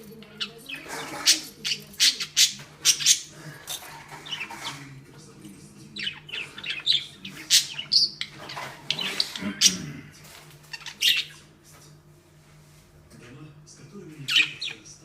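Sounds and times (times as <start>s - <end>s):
budgerigar chirping: 6.0s - 9.4s, 10.8s - 11.4s, 14.3s - 14.8s.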